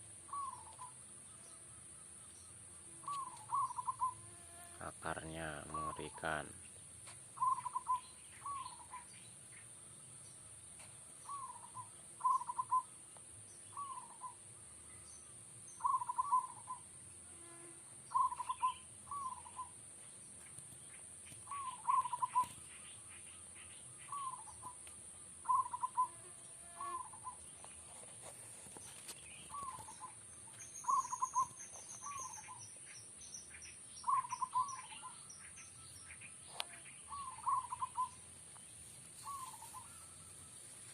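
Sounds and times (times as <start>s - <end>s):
dove cooing: 0.0s - 1.0s, 3.0s - 6.5s, 7.4s - 9.1s, 11.2s - 12.9s, 13.7s - 14.4s, 15.8s - 16.8s, 18.1s - 19.8s, 21.5s - 22.6s, 24.1s - 24.8s, 25.4s - 27.4s, 29.5s - 30.2s, 30.8s - 32.6s, 34.0s - 35.2s, 36.5s - 38.2s, 39.2s - 40.2s
small bird twittering trill: 0.3s - 1.6s, 2.2s - 4.2s, 7.4s - 10.4s, 11.2s - 12.9s, 13.5s - 14.4s, 15.0s - 16.9s, 18.1s - 24.8s, 25.4s - 26.2s, 28.8s - 40.6s.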